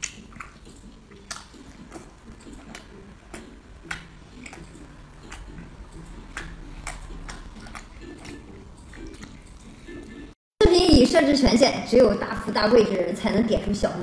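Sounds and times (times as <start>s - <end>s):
wet mouth clicks and smacks: 0.0s - 9.7s.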